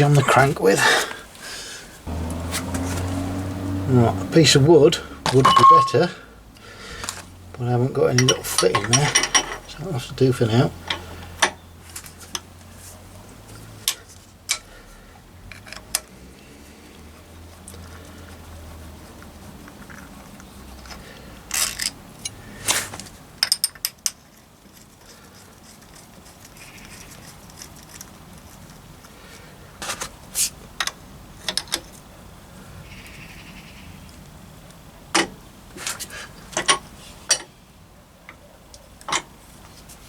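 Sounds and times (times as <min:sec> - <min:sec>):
hand tools knocking on metal: 0:05.3 - 0:06.0.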